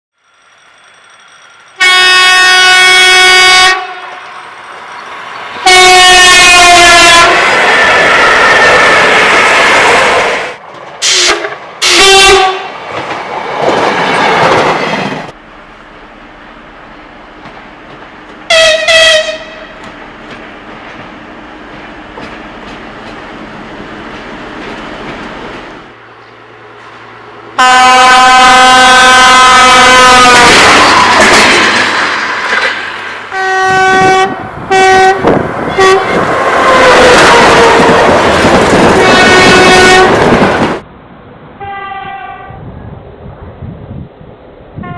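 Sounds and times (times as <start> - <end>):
train rushing noise: 0.2 - 44.9
locomotive horn blasts: 1.8 - 4.3, 5.6 - 7.5, 11.0 - 12.7, 18.5 - 19.8, 27.6 - 30.7, 33.3 - 38.0, 38.9 - 40.3, 41.6 - 42.6
wheels clicking on rail joints: 17.4 - 27.0, 30.8 - 33.3.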